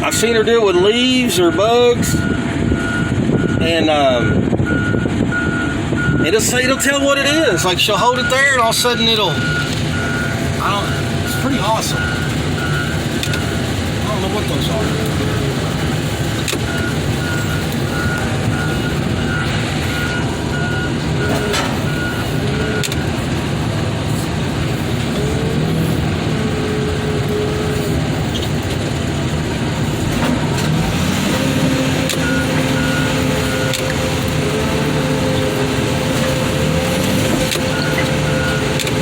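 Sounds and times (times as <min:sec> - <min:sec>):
heavy machine engine running: 0:00.0 - 0:39.0
reversing alarm beeping: 0:01.3 - 0:23.2, 0:30.9 - 0:39.0.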